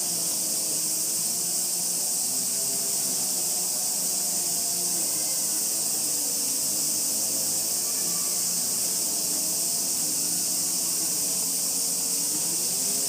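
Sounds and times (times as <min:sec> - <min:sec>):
cicada chorus: 0:00.0 - 0:13.0.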